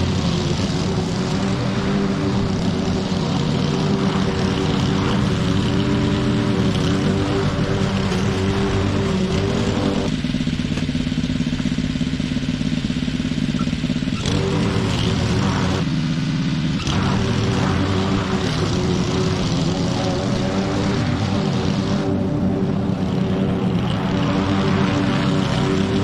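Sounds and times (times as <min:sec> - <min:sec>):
lawn mower engine running: 0:00.0 - 0:26.0.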